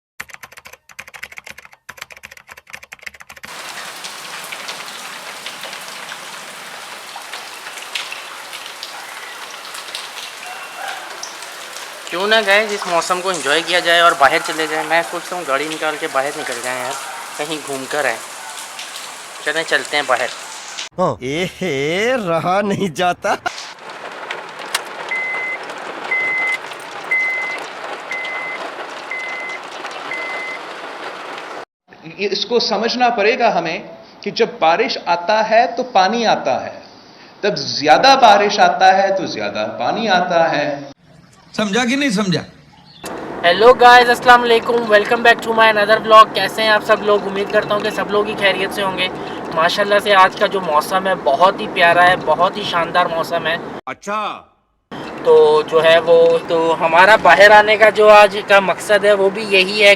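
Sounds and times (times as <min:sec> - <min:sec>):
rain patter of sharp taps: 0:03.1 - 0:20.9, 0:23.5 - 0:31.7, 0:43.0 - 0:53.8, 0:54.9 - 0:59.9
heavy rain hiss: 0:03.5 - 0:20.9, 0:23.5 - 0:31.6, 0:43.1 - 0:53.8
raindrops striking close by: 0:03.5 - 0:20.9, 0:23.5 - 0:31.7, 0:43.0 - 0:53.8, 0:54.9 - 0:59.9
reversing alarm beeping: 0:25.1 - 0:30.7.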